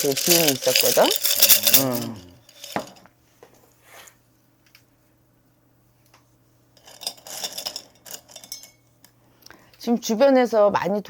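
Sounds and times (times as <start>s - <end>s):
small hard objects clinking: 0.0s - 3.1s.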